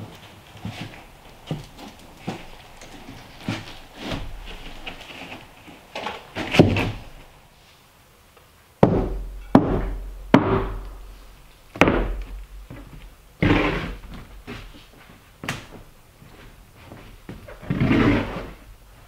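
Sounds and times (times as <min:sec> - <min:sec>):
sharp thuds: 0:11.8 - 0:14.7.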